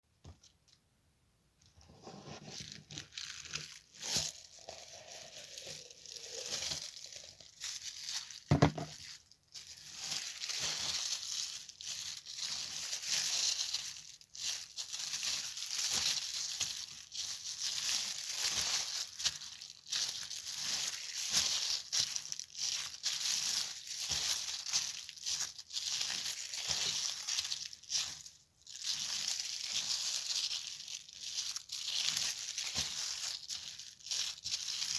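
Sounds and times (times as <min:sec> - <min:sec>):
loud knock: 0:08.5 - 0:08.9.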